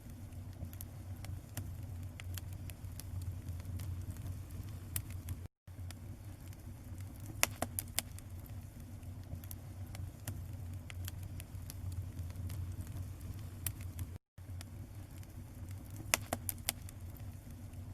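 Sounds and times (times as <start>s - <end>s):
low hum: 0.0s - 7.4s, 8.1s - 16.0s
fire crackling: 0.0s - 17.9s
sharp pops: 16.0s - 16.9s.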